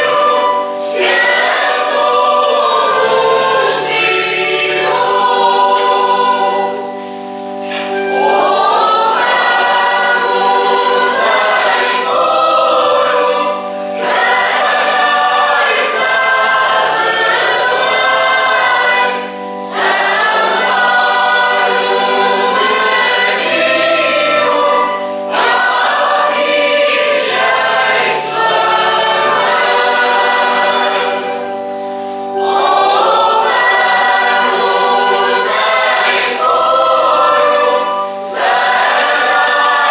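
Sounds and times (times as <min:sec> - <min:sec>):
choir singing a hymn: 0:00.0 - 0:39.9
held accompanying chords: 0:00.0 - 0:39.9.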